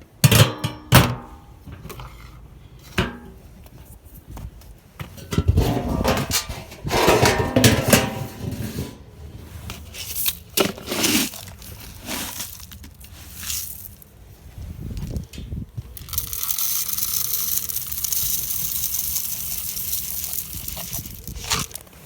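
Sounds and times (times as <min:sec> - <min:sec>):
wind rumble on microphone: 0:03.4 - 0:07.2, 0:14.3 - 0:16.4, 0:20.4 - 0:21.8
seed bag rustling and crinkling: 0:09.5 - 0:15.3, 0:15.9 - 0:22.0
seed pouring: 0:16.0 - 0:21.9.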